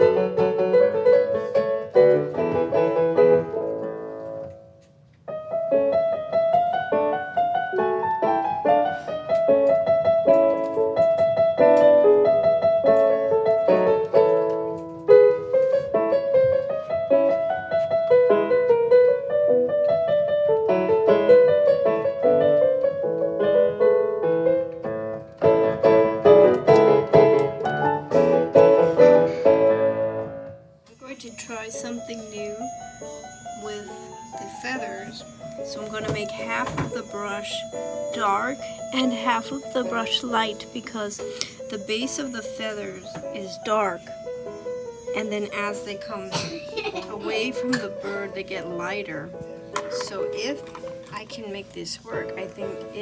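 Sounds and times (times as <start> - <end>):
piano music: 0.0 - 53.0.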